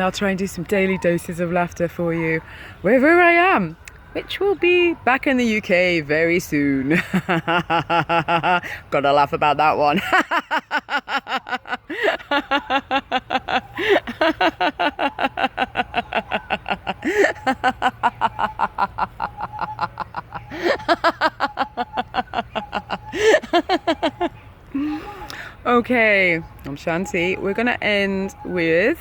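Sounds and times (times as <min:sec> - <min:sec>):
person laughing rhythmically: 0:06.9 - 0:08.9, 0:10.0 - 0:25.3.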